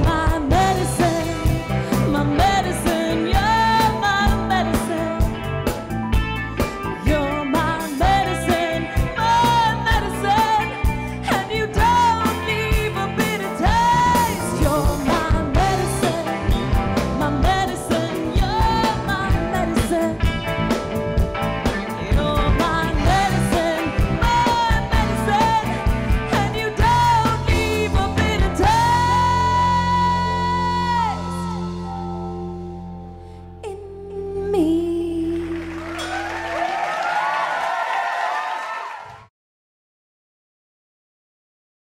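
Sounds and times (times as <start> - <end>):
drums: 0.0 - 32.2
live rock band playing: 0.0 - 33.4.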